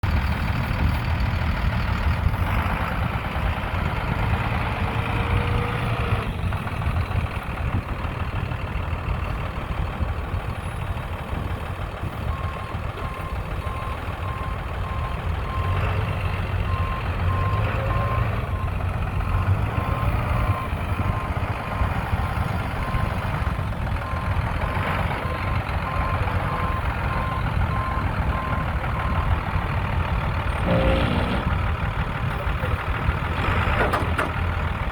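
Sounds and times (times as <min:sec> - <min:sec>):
diesel truck running: 0:00.0 - 0:34.9
reversing alarm beeping: 0:25.2 - 0:29.4, 0:30.4 - 0:31.7.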